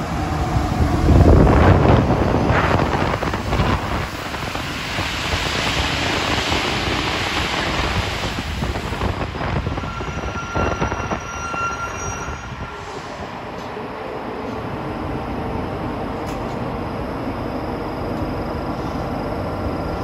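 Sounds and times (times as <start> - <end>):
metro car running noise: 0.0 - 20.0
passing train hiss: 12.4 - 15.1.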